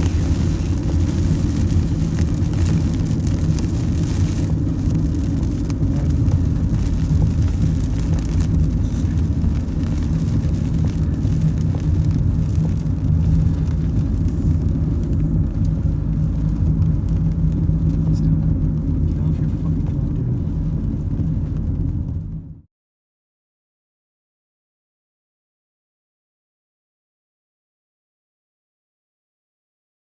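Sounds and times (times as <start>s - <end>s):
car road and engine rumble: 0.0s - 22.7s.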